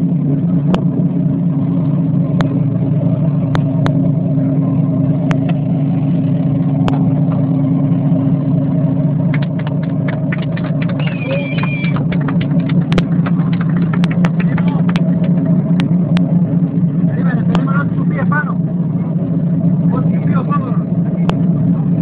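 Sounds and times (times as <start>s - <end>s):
boat engine drone: 0.0s - 22.0s
high gliding squeak: 11.0s - 12.0s.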